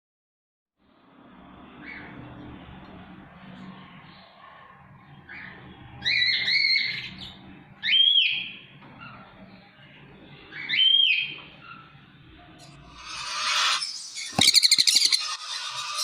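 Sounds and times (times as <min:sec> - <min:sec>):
parrot whistling calls: 0:12.9 - 0:16.0.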